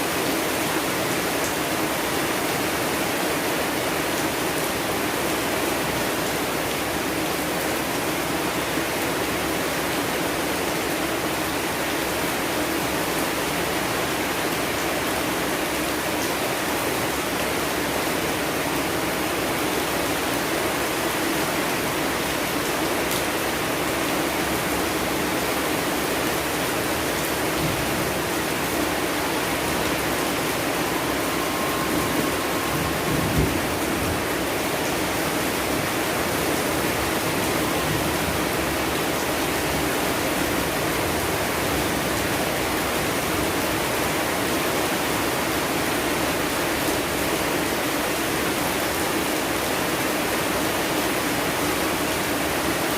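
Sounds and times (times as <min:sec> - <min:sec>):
heavy rainfall: 0:00.0 - 0:52.9
low rumble of thunder: 0:29.7 - 0:35.6.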